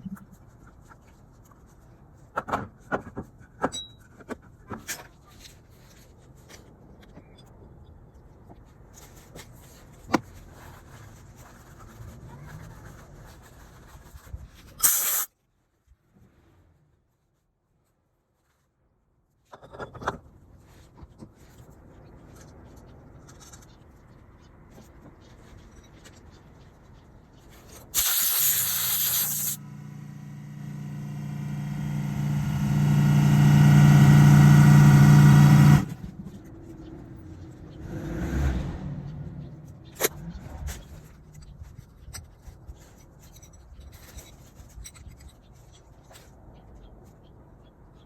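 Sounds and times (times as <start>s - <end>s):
short loud hisses: 14.8s - 15.3s, 28.0s - 29.6s
scooter engine running: 28.6s - 36.2s.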